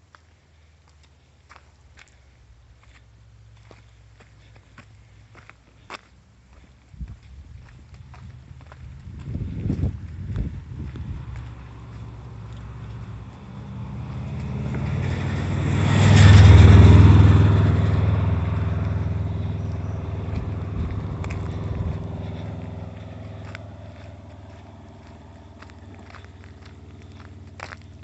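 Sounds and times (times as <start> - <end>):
vehicle driving past: 7.3 - 28.0.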